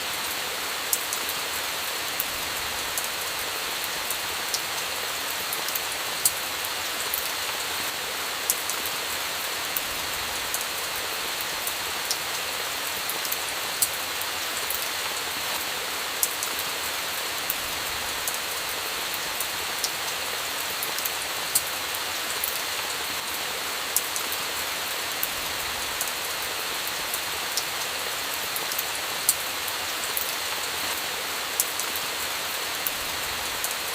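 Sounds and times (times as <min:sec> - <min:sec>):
steady rain hiss: 0:00.0 - 0:33.9.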